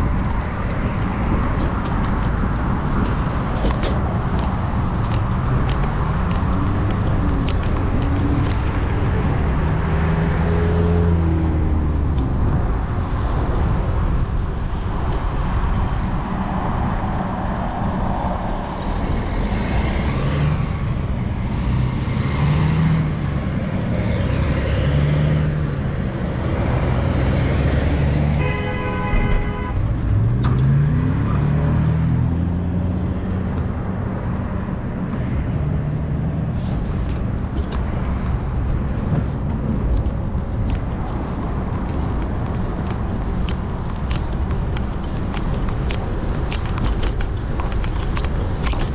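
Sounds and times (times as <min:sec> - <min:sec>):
road and wind noise: 0:00.0 - 0:48.9
vehicles passing: 0:00.0 - 0:48.9.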